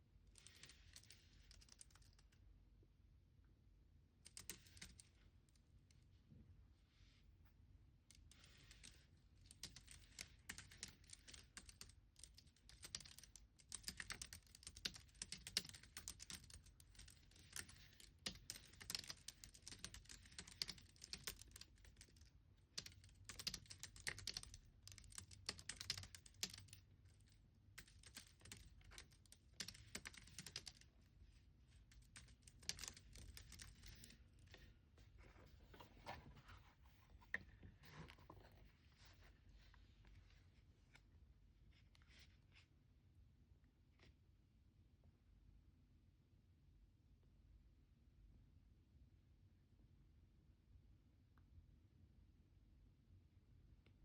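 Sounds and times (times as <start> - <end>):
typing on computer keyboard: 4.3 - 5.1, 8.4 - 26.8, 27.8 - 30.9, 31.9 - 34.2.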